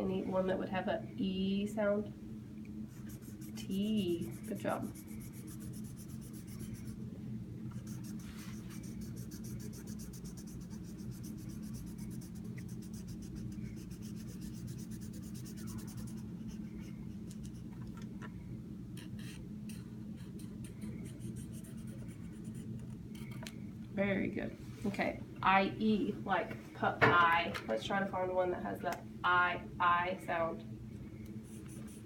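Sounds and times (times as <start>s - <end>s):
steady low hum: 0.0s - 32.0s
scratchy colouring strokes on paper: 2.9s - 7.0s, 7.8s - 17.7s, 19.1s - 23.4s, 31.4s - 32.0s.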